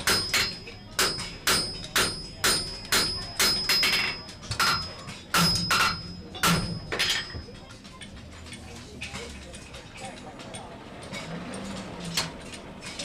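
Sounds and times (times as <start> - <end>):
hammer striking steel on anvil: 0.0 - 7.6.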